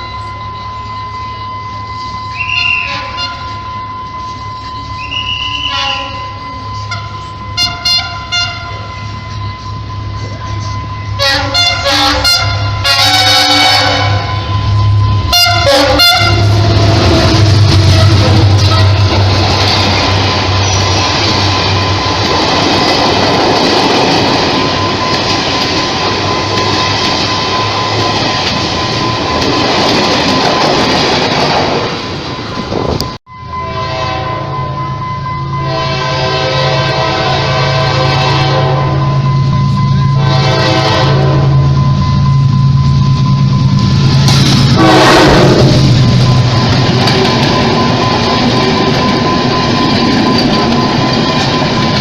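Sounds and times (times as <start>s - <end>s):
high whine: 0.0s - 31.3s, 32.0s - 52.0s
train rumbling on track: 0.0s - 52.0s
train horn: 2.3s - 3.6s, 5.0s - 9.0s, 11.2s - 19.2s, 33.6s - 34.8s, 35.6s - 39.2s, 40.1s - 41.8s, 44.7s - 46.0s.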